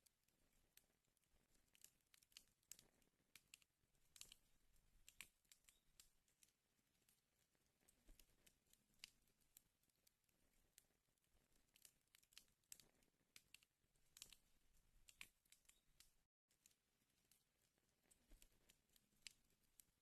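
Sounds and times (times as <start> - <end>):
wood fire crackling: 0.8 - 9.6, 10.3 - 16.2.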